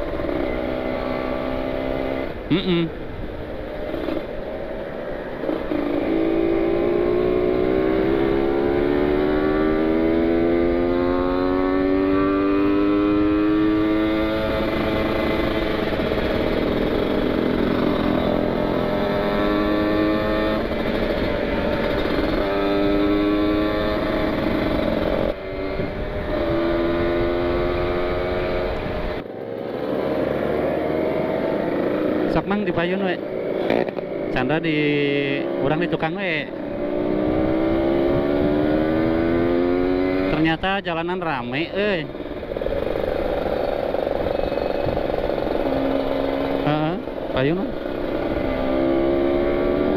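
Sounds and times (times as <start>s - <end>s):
motorcycle engine accelerating through gears: 0.0s - 2.9s, 3.7s - 49.9s
wind rushing past: 22.4s - 29.2s.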